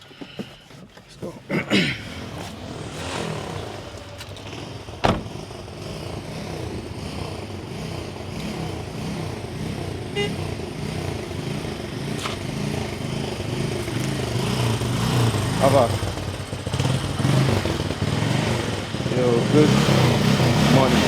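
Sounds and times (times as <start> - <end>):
vehicle engine running: 1.8 - 21.0
sharp thump: 5.0 - 5.4.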